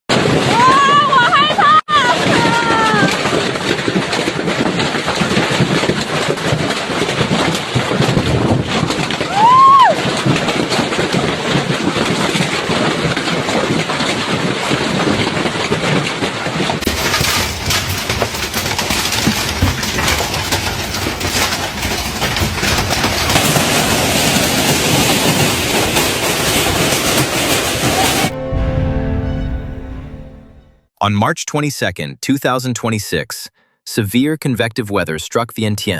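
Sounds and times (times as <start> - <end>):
heavy hail pounding: 0.1 - 28.9
rising and falling tone: 28.3 - 30.8.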